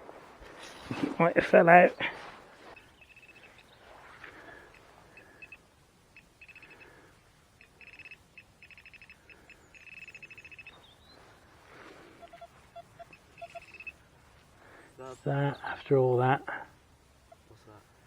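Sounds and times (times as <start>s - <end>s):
short low beeps: 2.7s - 3.7s, 4.7s - 7.0s, 7.6s - 10.8s, 12.2s - 14.0s
metal detector beeping: 2.7s - 3.8s, 4.7s - 7.0s, 7.6s - 10.9s, 12.2s - 14.0s.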